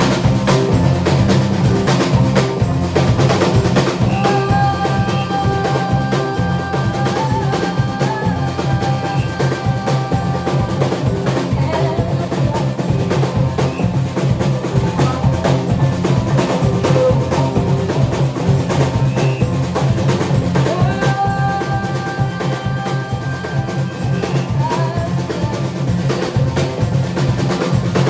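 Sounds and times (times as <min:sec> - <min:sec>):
drum fills and rolls: 0:00.0 - 0:28.0
instrumental rock band: 0:00.0 - 0:28.0.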